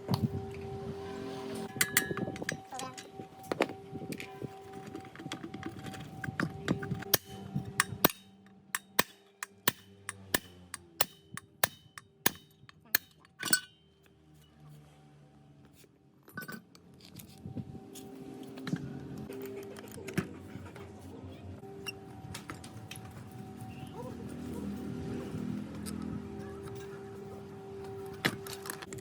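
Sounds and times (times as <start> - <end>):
faint background music: 0.0 - 11.6, 12.2 - 29.0
metal parts clinking: 1.7 - 3.2, 4.2 - 13.9, 16.2 - 16.8.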